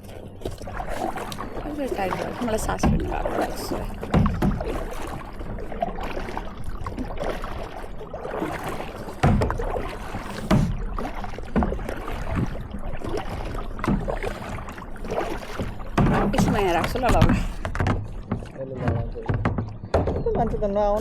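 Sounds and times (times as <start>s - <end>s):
paddle strokes: 0.0s - 20.4s
water splashing against hull: 0.0s - 21.0s
low thumps: 1.9s - 5.2s, 9.2s - 21.0s.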